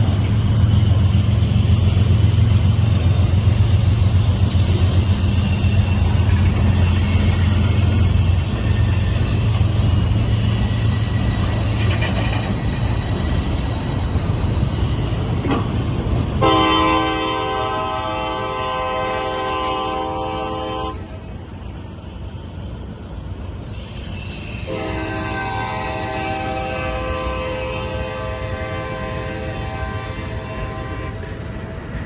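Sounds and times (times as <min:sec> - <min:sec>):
train rumbling on rails: 0:00.0 - 0:32.0
locomotive air horn blasts: 0:16.4 - 0:21.1, 0:24.6 - 0:31.4.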